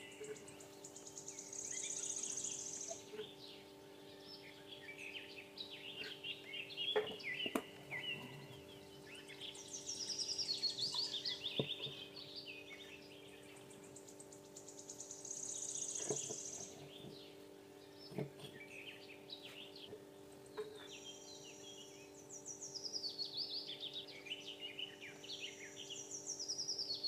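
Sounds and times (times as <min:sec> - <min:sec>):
buzzy high bird trill: 0:00.0 - 0:19.8
small birds chirping: 0:00.0 - 0:27.0
steady low hum: 0:00.0 - 0:27.0.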